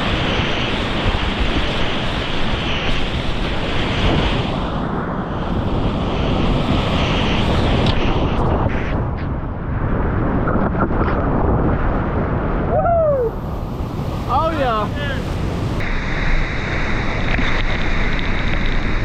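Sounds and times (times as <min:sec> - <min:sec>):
river rapids rushing: 0:13.9 - 0:18.4.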